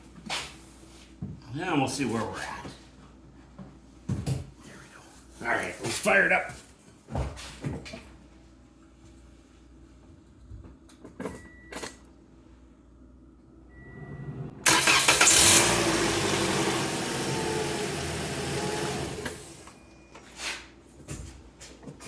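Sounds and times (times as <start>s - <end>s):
short beeps: 13.7s - 14.4s
car engine starting and idling: 13.7s - 19.8s.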